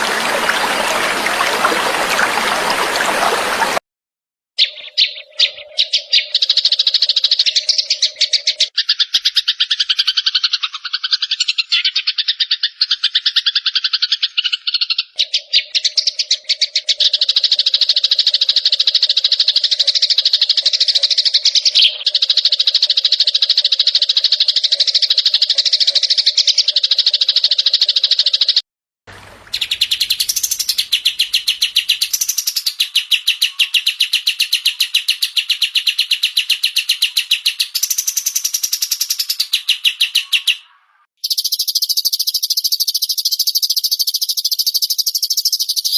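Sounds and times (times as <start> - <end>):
songbird buzzy trills: 29.4 - 45.9.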